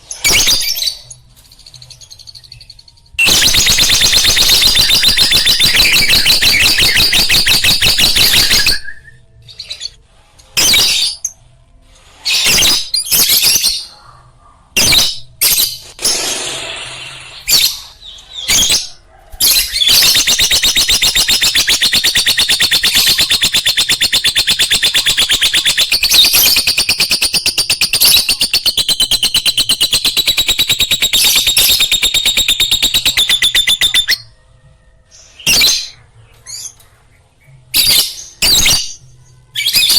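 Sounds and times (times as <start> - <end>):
lovebird chattering: 19.9 - 34.2.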